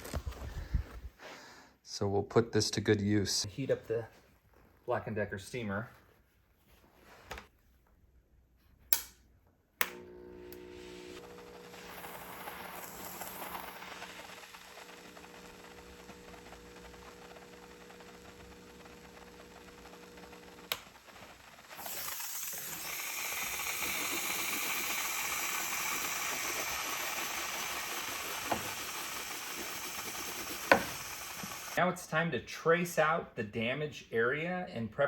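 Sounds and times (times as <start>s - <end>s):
switch click: 8.9s - 9.2s, 9.8s - 10.7s
faint steady hum: 9.8s - 31.8s
steamer hissing: 9.9s - 31.8s.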